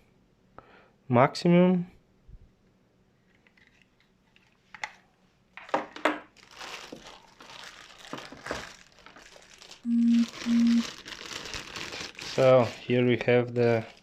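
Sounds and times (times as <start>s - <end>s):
packaging crinkling and rustling: 5.6s - 14.0s.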